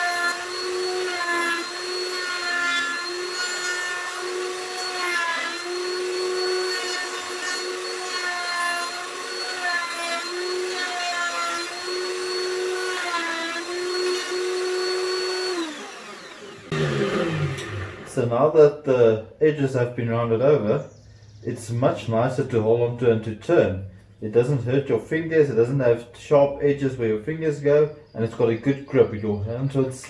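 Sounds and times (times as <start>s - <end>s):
router whining: 0.0s - 18.4s
router bit cutting wood: 0.0s - 18.6s.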